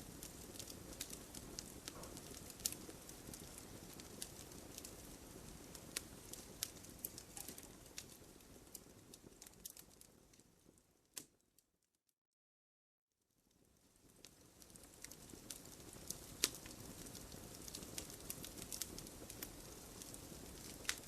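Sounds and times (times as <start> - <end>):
rush of flame: 0.0 - 10.1
fire crackling and popping: 0.0 - 11.5, 13.2 - 21.0.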